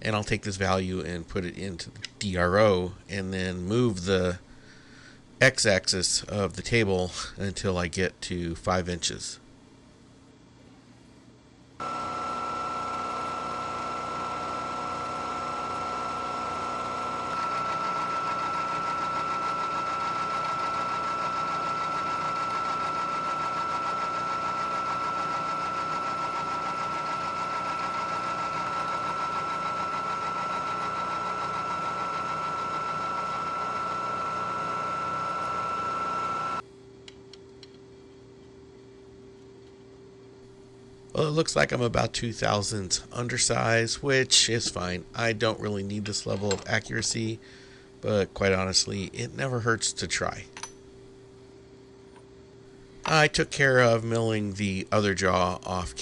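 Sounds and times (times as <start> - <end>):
milling machine whining: 11.8 - 36.6.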